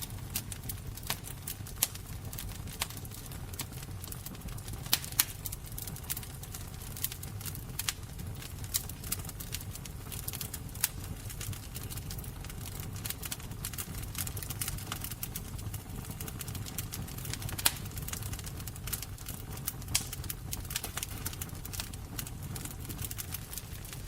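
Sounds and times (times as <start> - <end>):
low rumble of burning: 0.0 - 24.0
wood fire crackling: 0.0 - 24.0
sharp snaps: 19.9 - 22.3.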